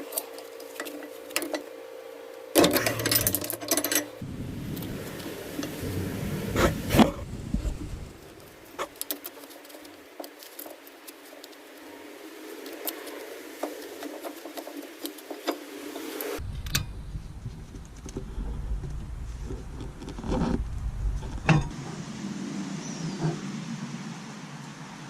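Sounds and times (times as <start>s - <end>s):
steady low rumble: 4.2s - 8.9s, 16.4s - 25.0s.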